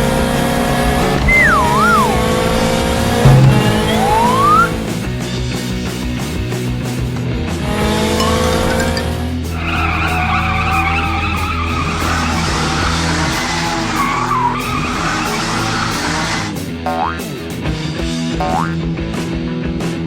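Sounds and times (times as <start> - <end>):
background music: 0.0 - 5.3
tyres squealing: 8.2 - 16.5.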